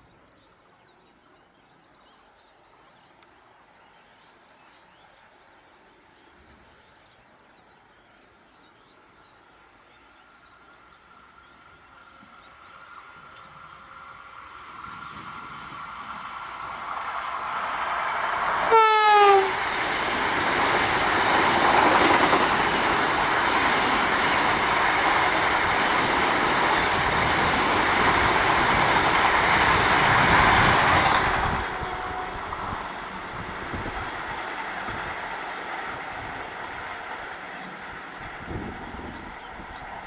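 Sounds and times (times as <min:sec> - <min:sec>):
train running noise: 0:07.8 - 0:40.0
rush of train passing: 0:08.1 - 0:40.0
train horn blast: 0:18.6 - 0:19.6, 0:31.4 - 0:33.2.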